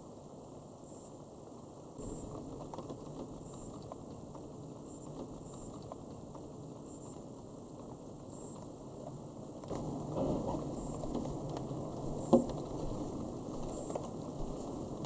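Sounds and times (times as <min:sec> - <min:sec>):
rain pattering: 0:02.0 - 0:15.0
raindrop ticks: 0:02.1 - 0:09.8, 0:10.7 - 0:12.8.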